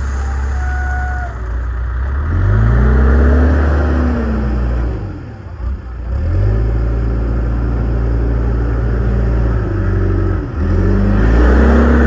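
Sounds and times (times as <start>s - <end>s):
heavy machine engine running: 0.0s - 12.0s.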